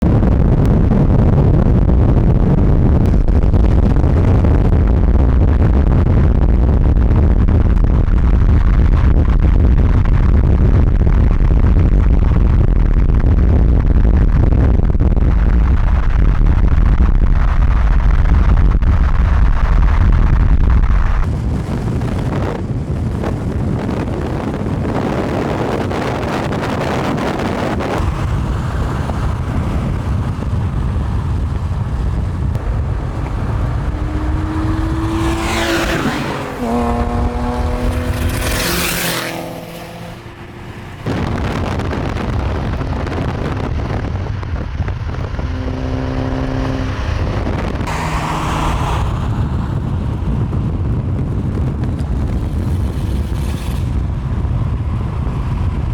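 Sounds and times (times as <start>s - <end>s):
road and wind rumble: 0.0s - 55.9s
car engine revving: 25.0s - 50.7s
car rushing past: 27.6s - 43.6s, 44.8s - 50.8s.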